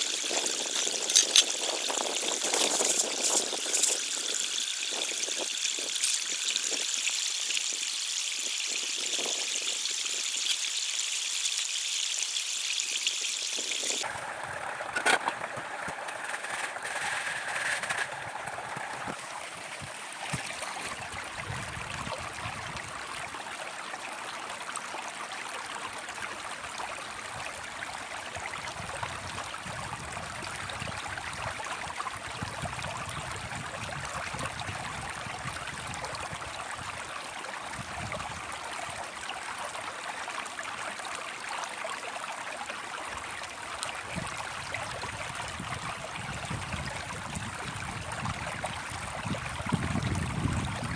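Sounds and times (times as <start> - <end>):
running water rushing: 0.0 - 14.1.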